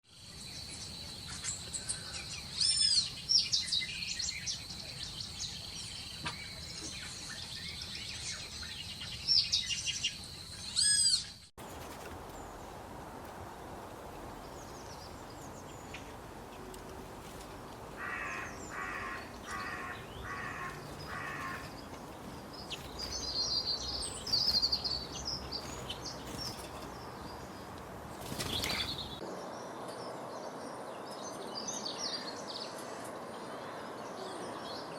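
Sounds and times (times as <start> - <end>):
small birds chirping: 0.1 - 34.9
harsh bird calls: 14.3 - 29.2.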